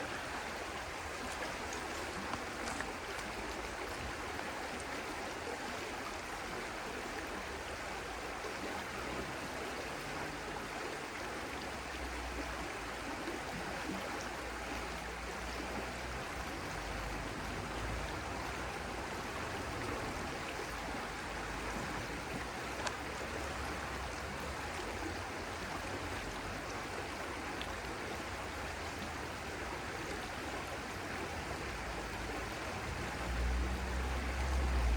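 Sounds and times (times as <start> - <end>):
stream water flowing: 0.0 - 34.9
faint splashing ticks: 1.1 - 5.1, 22.1 - 23.6.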